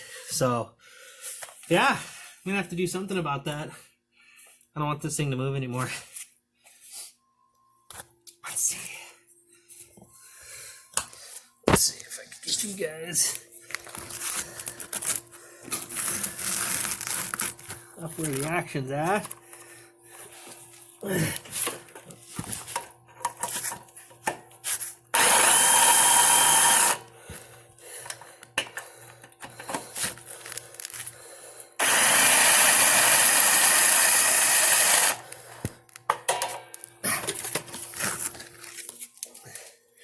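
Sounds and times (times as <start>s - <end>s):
power tool bursts: 25.1s - 27.0s, 31.8s - 35.2s
tool handling clicks and knocks: 35.6s - 37.8s.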